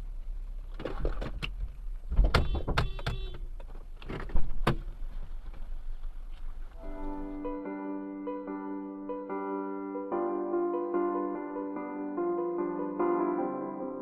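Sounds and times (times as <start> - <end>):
vehicle low rumble: 0.0 - 7.6.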